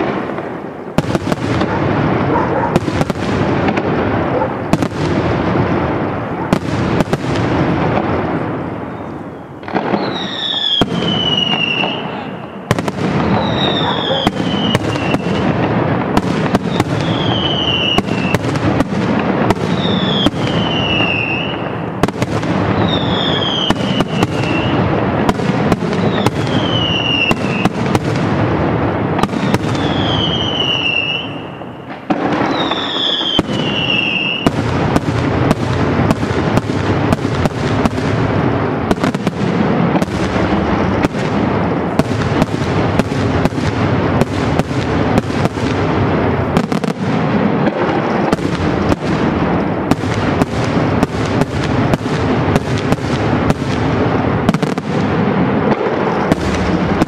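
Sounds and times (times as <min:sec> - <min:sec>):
fireworks bangs and crackling: 0:00.0 - 0:57.0
falling firework whistle: 0:08.8 - 0:15.7, 0:16.4 - 0:18.6, 0:19.5 - 0:21.9, 0:22.7 - 0:24.9, 0:25.8 - 0:27.9, 0:29.2 - 0:34.7.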